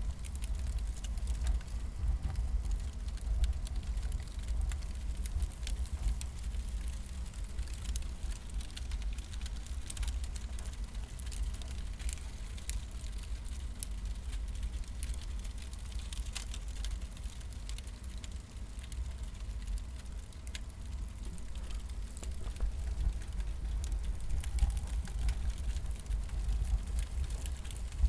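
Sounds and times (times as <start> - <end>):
firewood crackling and popping: 0.0 - 28.0
low rumble: 21.0 - 28.0.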